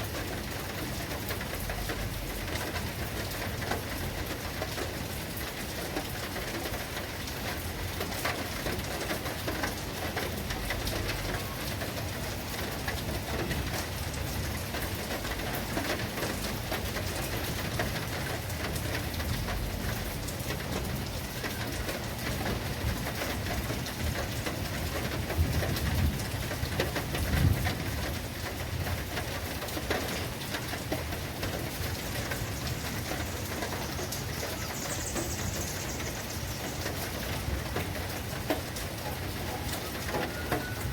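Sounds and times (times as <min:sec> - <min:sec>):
heavy rain pattering: 0:00.0 - 0:40.9.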